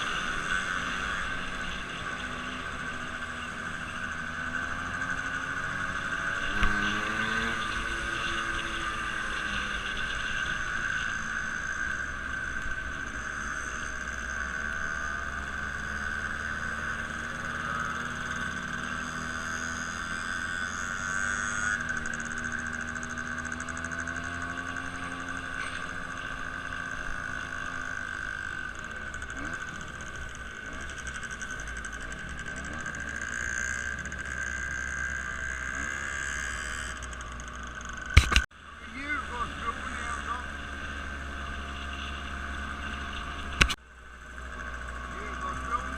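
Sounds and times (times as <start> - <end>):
engine running: 0.0 - 45.9.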